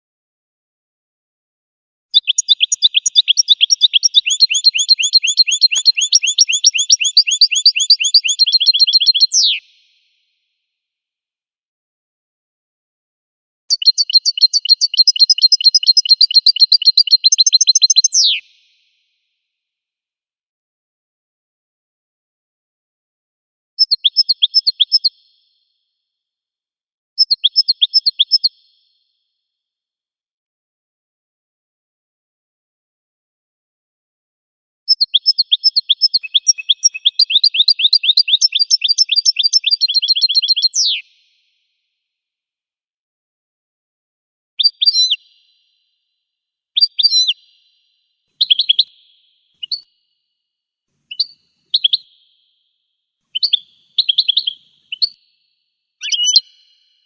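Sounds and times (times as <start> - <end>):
finch singing: 2.1 - 9.6, 13.7 - 18.4, 34.9 - 41.0, 46.8 - 47.6, 48.4 - 49.9, 51.1 - 52.2, 53.3 - 55.2, 56.0 - 56.8.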